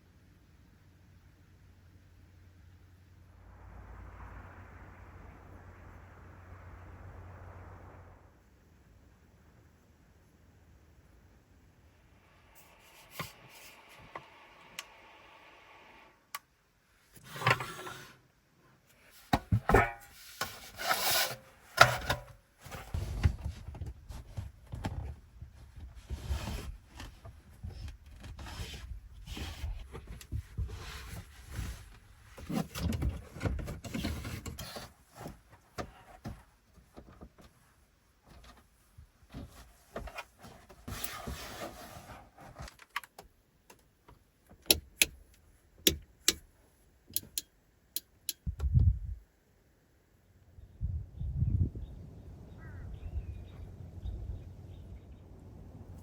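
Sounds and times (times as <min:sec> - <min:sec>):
low rumble: 0:02.2 - 0:13.0.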